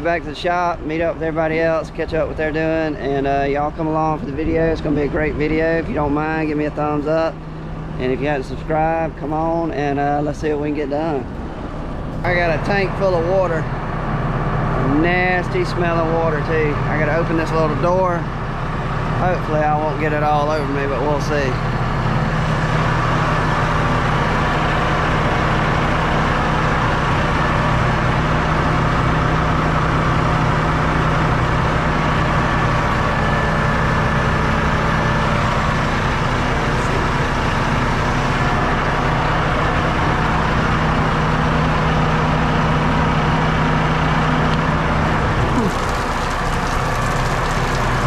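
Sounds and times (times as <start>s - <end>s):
diesel engine idling: 0.0s - 48.0s.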